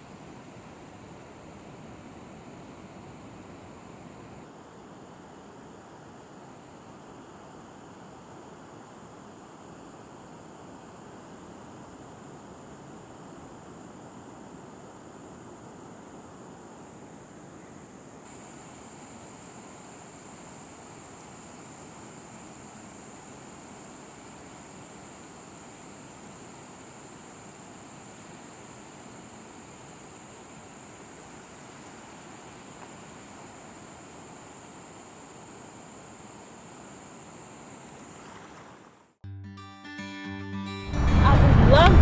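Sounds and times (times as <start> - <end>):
outdoor noise: 0.0 - 4.5, 15.8 - 39.2.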